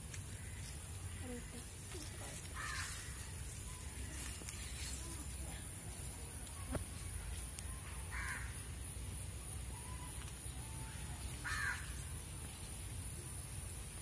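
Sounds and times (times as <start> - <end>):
bird calling: 9.4 - 12.3.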